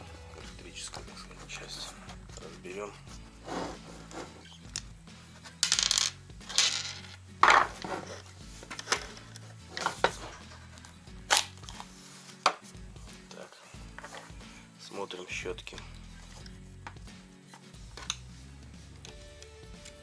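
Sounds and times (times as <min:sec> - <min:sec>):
rattling scrapes: 0:00.3 - 0:10.8
small metal parts and tools handled: 0:00.3 - 0:12.6.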